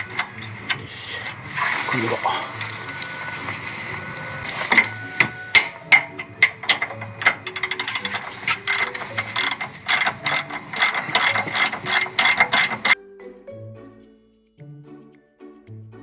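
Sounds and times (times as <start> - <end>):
ratchet wrench clicking: 4.7 - 13.0.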